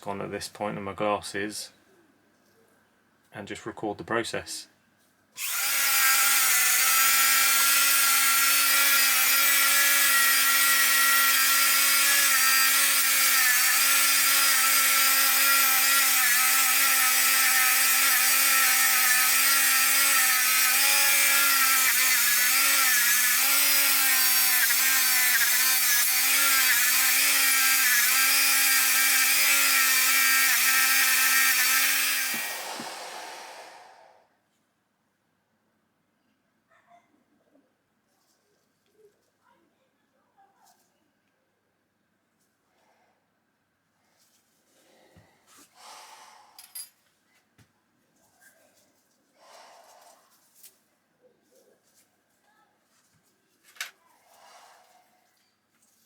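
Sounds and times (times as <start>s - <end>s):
electric power tool whining: 5.4s - 33.7s.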